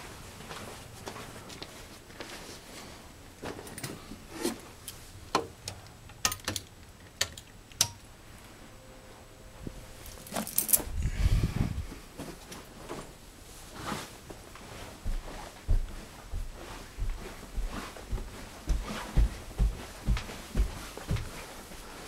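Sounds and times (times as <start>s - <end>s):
sharp clicks and light knocks: 4.8s - 8.1s.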